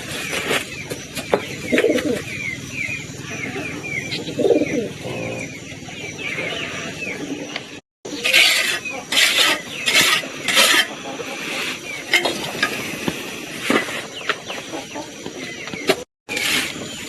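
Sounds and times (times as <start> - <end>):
low bird cooing: 3.4 - 7.0.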